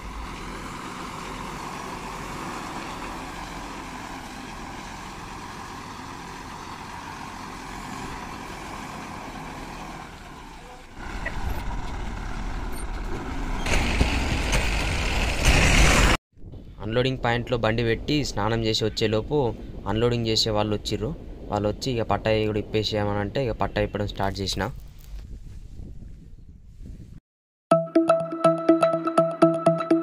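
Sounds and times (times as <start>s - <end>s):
diesel lorry engine: 0.0s - 16.2s.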